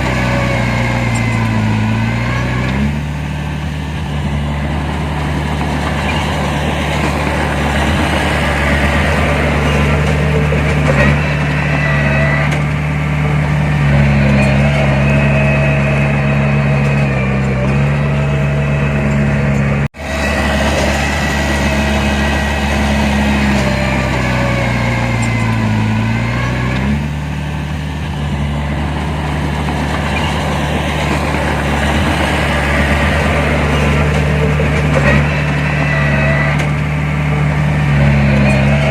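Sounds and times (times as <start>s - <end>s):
heavy machinery diesel engine running: 0.0s - 38.9s.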